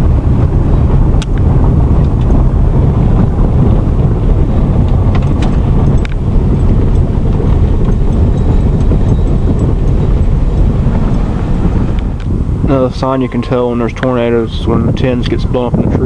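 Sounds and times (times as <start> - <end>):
car road and wind noise: 0.0 - 16.0
faint clicks and rattles: 4.8 - 11.3.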